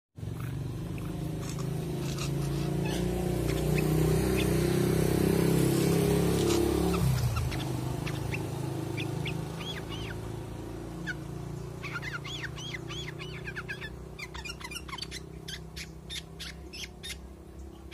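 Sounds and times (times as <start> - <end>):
songbird whistled calls: 6.4 - 10.2, 11.0 - 17.9.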